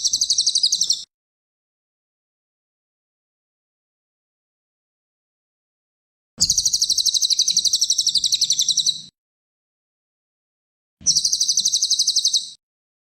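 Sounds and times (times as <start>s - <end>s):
songbird trilling: 0.0s - 1.1s, 6.4s - 9.1s, 11.1s - 12.6s.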